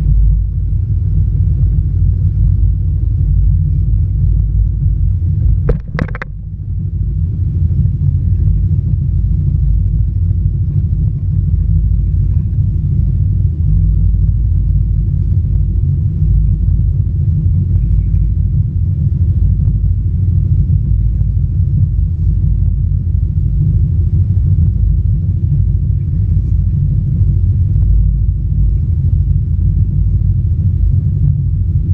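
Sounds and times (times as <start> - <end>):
jet ski engine and wind rumble: 0.0 - 31.9
sharp clicks: 5.7 - 6.5.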